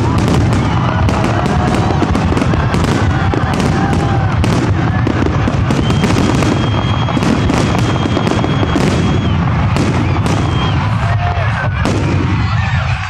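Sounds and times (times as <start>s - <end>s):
fireworks booming and crackling: 0.0s - 13.0s
long high firework whistle: 0.0s - 13.0s.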